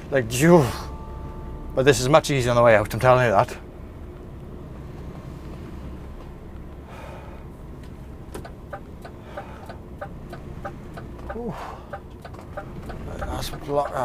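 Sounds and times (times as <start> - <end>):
lorry engine low rumble: 0.0 - 14.0
turn signal ticking: 7.5 - 14.0.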